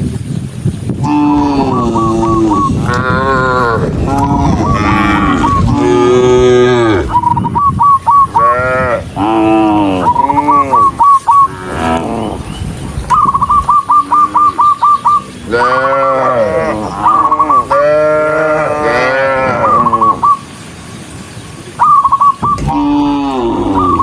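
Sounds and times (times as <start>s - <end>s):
cattle mooing: 1.0s - 7.2s, 8.3s - 12.4s, 15.5s - 20.1s, 22.6s - 24.0s.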